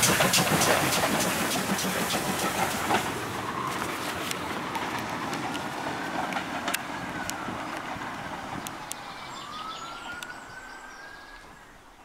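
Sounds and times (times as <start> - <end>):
train running on rails: 0.0 - 10.3.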